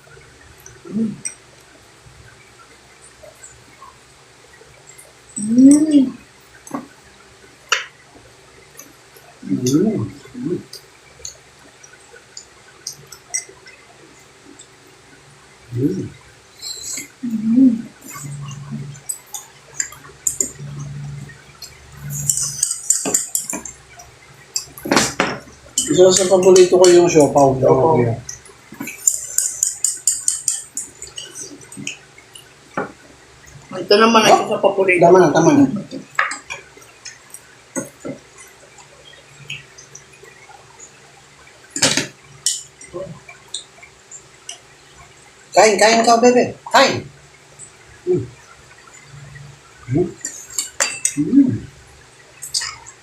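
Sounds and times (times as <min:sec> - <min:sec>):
cutlery clinking against plates: 0:21.6 - 0:23.8, 0:24.5 - 0:27.3, 0:28.4 - 0:32.0, 0:41.8 - 0:42.8, 0:50.2 - 0:51.2
cutlery clinking on dishes: 0:22.0 - 0:23.7, 0:28.8 - 0:31.4, 0:50.2 - 0:51.2
wet mouth and food noises: 0:28.2 - 0:33.7.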